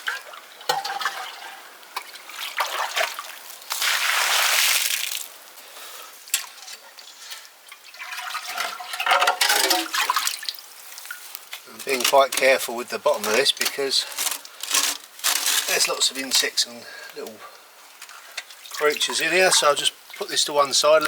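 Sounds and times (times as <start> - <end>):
water pouring: 0.0 - 5.3, 7.6 - 16.5, 18.4 - 21.0
water splashing: 0.0 - 5.3, 7.8 - 11.3, 18.5 - 21.0.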